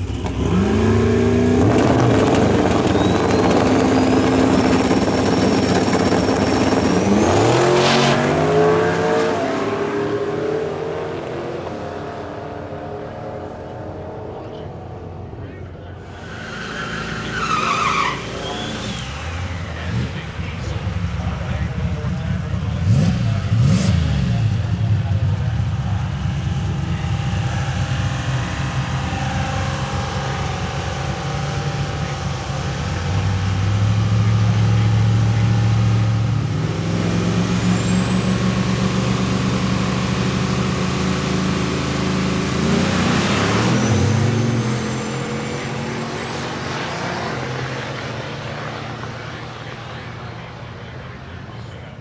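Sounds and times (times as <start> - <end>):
car engines running: 0.0 - 52.0
thin high whine: 16.0 - 20.2.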